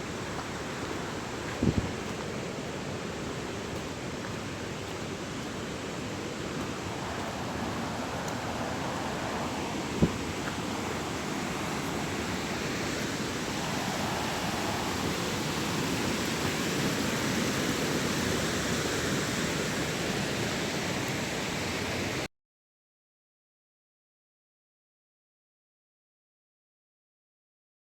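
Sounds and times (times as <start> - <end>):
water rushing: 0.0 - 22.3.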